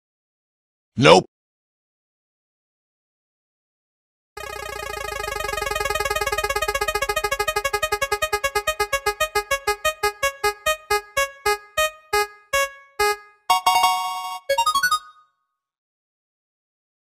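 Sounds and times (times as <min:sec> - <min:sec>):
prize wheel clicks slowing: 0:04.4 - 0:12.2.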